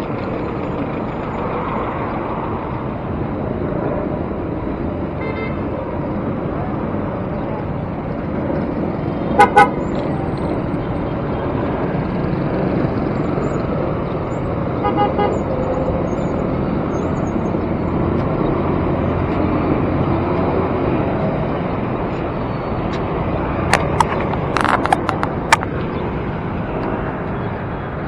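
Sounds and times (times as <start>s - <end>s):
city traffic noise: 0.0s - 28.0s
vehicle horn beeps: 5.2s - 5.6s, 9.4s - 9.8s, 14.8s - 15.4s.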